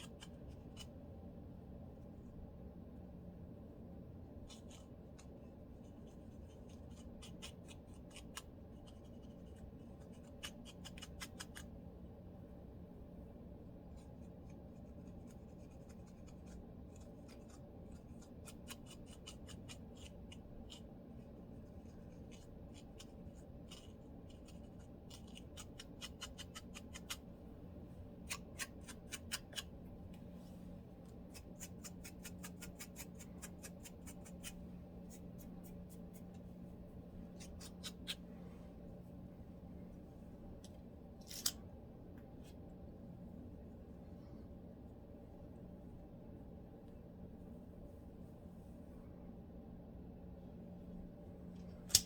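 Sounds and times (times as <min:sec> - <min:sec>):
faint steady hum: 0:00.0 - 0:52.0
lice comb scraping scalp: 0:14.8 - 0:20.9, 0:21.8 - 0:27.2, 0:31.1 - 0:36.3, 0:37.4 - 0:38.2, 0:41.2 - 0:41.6.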